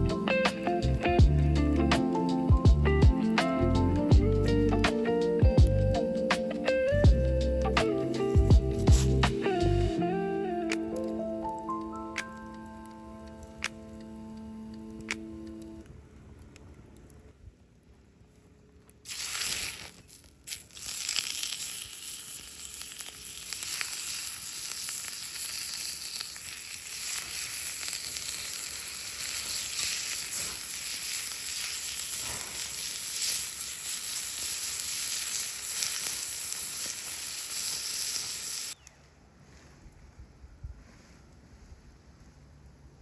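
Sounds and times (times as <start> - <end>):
food sizzling in a pan: 19.1 - 38.8.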